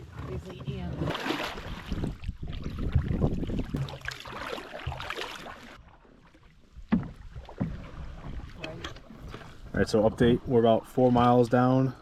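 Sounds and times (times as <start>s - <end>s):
canoe moving on water: 0.0s - 12.0s
wind buffeting microphone: 1.6s - 4.1s.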